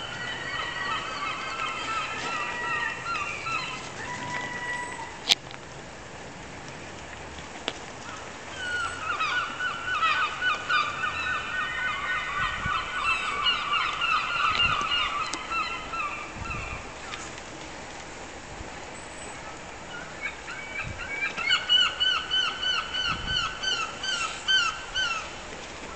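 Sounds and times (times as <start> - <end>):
seagulls squawking: 0.0 - 5.2, 8.5 - 17.2, 19.9 - 25.4.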